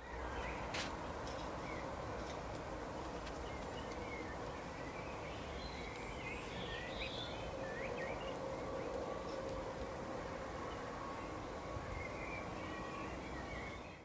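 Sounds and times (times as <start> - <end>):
small birds chirping: 3.3 - 9.2.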